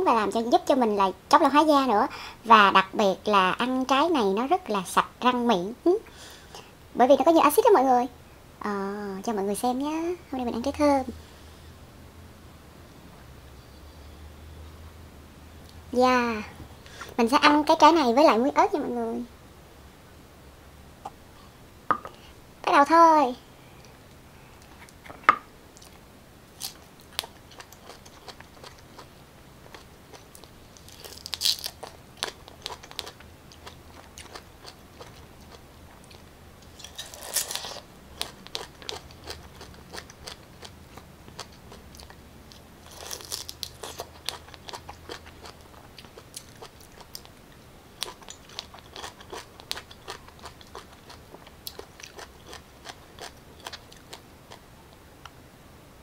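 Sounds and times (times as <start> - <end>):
biting and crunching pineapple: 26.6 - 47.4, 48.0 - 54.6
soft chewing clicks: 26.7 - 36.3, 38.2 - 55.4.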